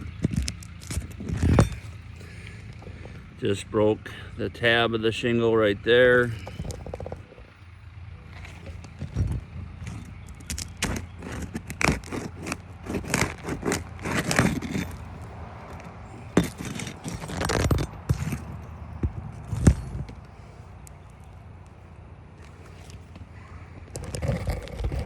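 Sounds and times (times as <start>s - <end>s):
shingles scraping and crackling: 0.0s - 4.8s, 6.1s - 25.0s.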